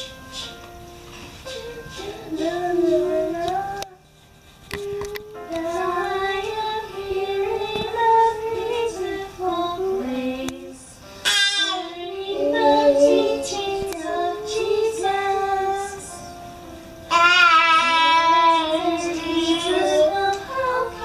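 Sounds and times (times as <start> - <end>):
children and woman singing: 1.5 - 4.0, 4.7 - 10.9, 11.7 - 16.3, 17.1 - 21.0.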